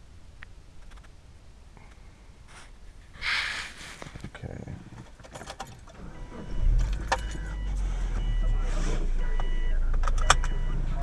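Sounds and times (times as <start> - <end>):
car engine cranking and running: 4.2 - 11.0
car keys jangling: 5.0 - 6.0, 6.8 - 7.6
dashboard warning chime beeping: 5.4 - 11.0.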